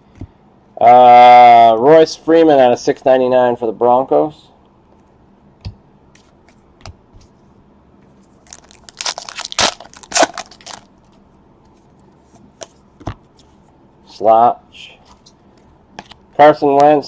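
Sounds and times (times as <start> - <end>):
foil wrapper crinkling and tearing: 8.4 - 10.9.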